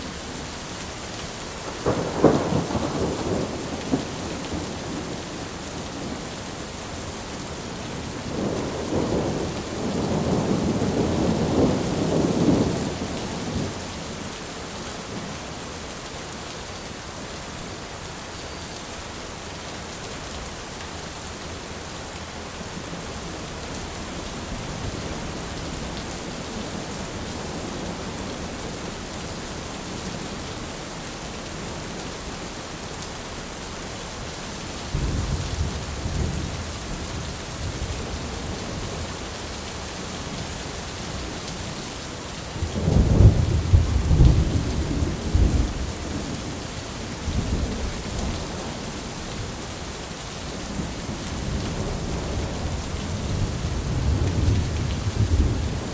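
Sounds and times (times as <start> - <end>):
steady rain: 0.0 - 55.9
thunder rumbling: 1.8 - 6.4, 7.9 - 13.8, 42.6 - 46.6, 50.7 - 55.9.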